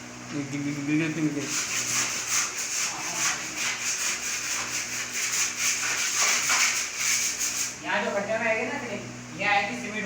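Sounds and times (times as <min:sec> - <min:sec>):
hand tool rubbing plaster wall: 0:01.2 - 0:07.8.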